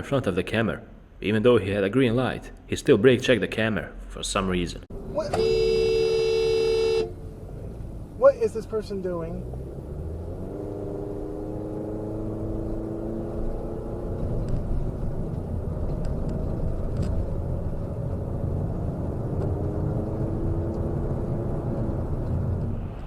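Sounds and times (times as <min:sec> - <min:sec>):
road rumble: 0:00.0 - 0:23.0
car engine: 0:04.8 - 0:23.0.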